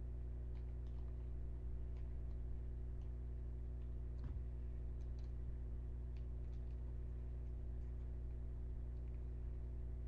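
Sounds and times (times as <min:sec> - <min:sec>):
steady low hum: 0:00.0 - 0:10.0
faint clicks: 0:04.9 - 0:05.4.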